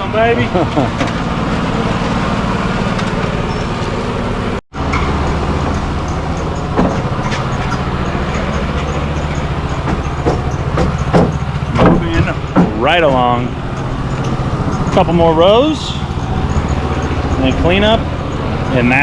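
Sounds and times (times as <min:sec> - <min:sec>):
motor droning: 0:00.0 - 0:19.0
sharp knocks: 0:05.8 - 0:13.2.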